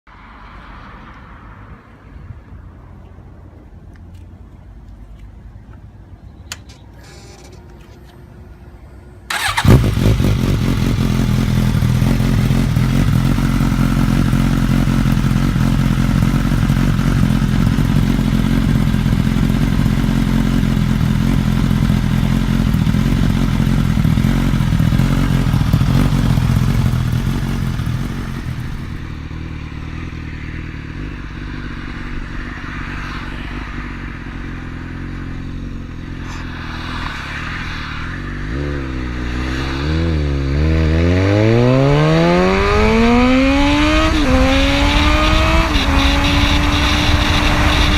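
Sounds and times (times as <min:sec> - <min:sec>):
motorcycle engine idling: 0:09.3 - 0:29.0.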